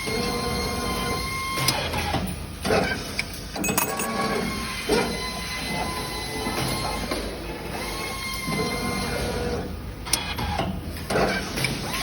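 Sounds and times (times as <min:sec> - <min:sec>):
machine motor whine: 0:03.9 - 0:12.0.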